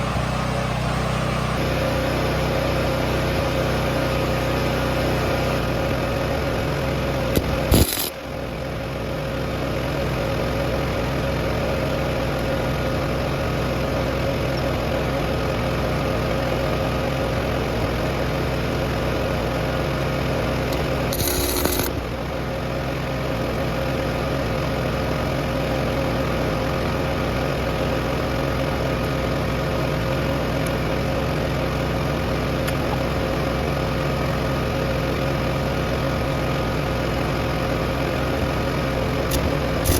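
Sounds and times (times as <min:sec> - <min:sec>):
machine humming: 0:00.0 - 0:02.6, 0:07.2 - 0:08.1, 0:20.6 - 0:22.2.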